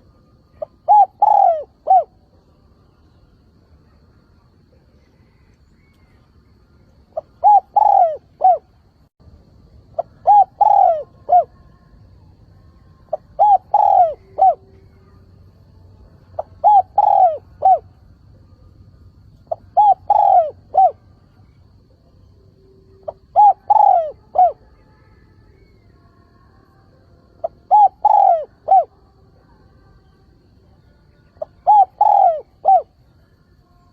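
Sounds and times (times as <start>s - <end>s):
dove cooing: 0.0s - 2.2s, 7.1s - 8.8s, 10.0s - 11.7s, 13.0s - 15.2s, 16.4s - 17.9s, 19.4s - 21.1s, 22.9s - 24.7s, 27.4s - 29.0s, 31.4s - 33.0s.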